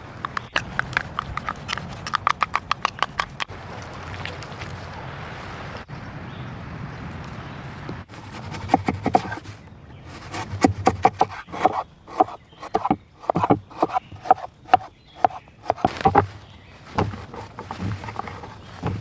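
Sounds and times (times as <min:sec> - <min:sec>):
knife chopping on wooden board: 0:08.2 - 0:09.5, 0:10.1 - 0:19.0.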